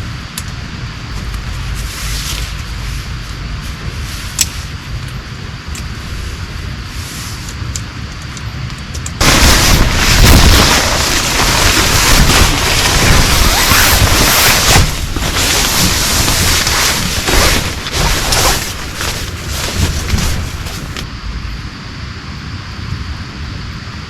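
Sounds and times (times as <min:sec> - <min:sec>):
deep rumble: 0:00.0 - 0:07.1, 0:09.2 - 0:22.7
heavy rain pouring: 0:09.2 - 0:21.1.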